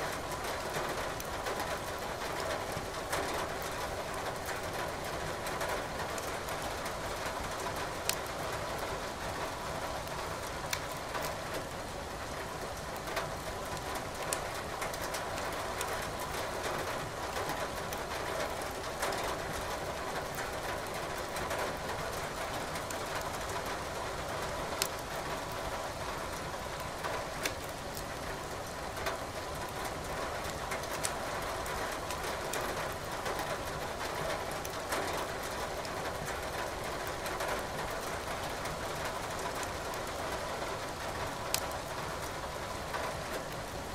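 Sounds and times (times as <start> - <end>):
steady rain: 0.0 - 43.9
wood fire crackling: 10.0 - 11.4, 24.8 - 25.0, 26.9 - 28.1, 41.2 - 42.4.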